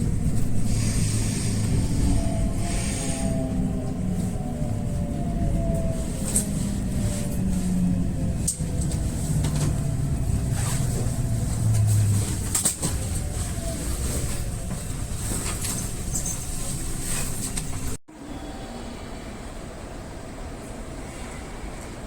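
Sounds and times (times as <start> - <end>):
electric train motor whine: 0.3 - 14.8.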